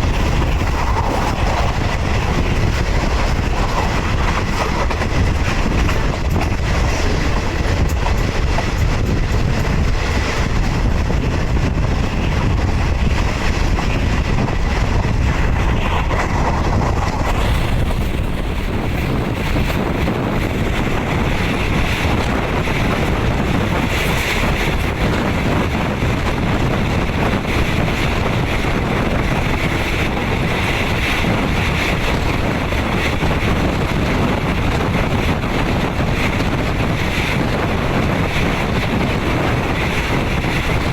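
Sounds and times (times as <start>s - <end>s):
train wheels rumbling on rail: 0.0s - 40.9s
wind rushing across microphone: 0.0s - 40.9s.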